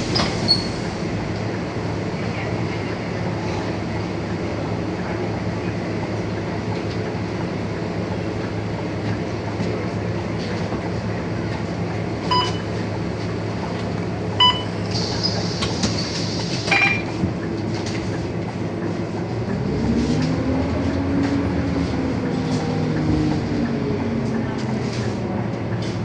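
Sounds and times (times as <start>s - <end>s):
bus diesel engine drone: 0.0s - 26.0s
short beeps: 12.3s - 12.7s, 14.4s - 14.8s, 16.7s - 17.1s.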